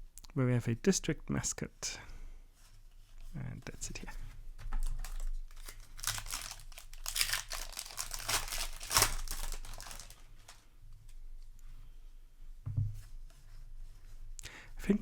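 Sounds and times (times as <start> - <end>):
foil wrapper crinkling and tearing: 4.8 - 10.6.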